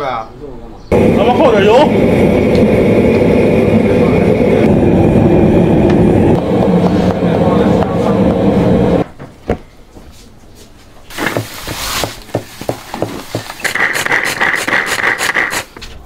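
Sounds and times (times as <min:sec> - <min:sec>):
electric chopper whirring: 0:00.9 - 0:09.0.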